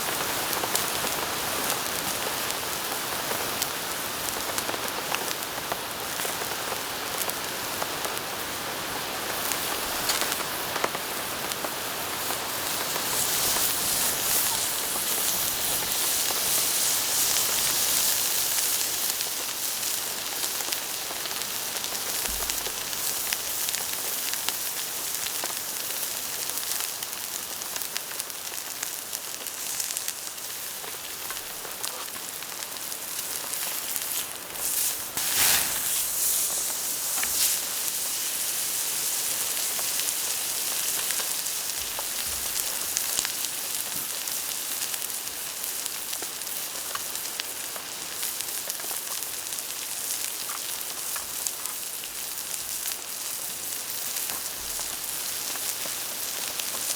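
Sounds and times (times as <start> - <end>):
campfire crackling: 0.0 - 56.9
rain pattering: 0.0 - 56.9
brief loud hiss: 34.6 - 38.5.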